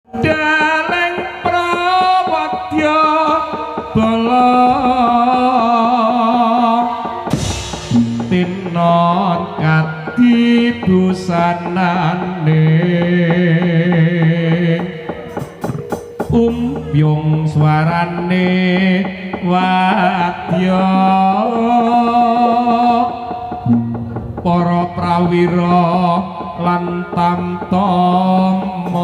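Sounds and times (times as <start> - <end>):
drumming: 0.1 - 29.0
low held tone: 6.3 - 12.2.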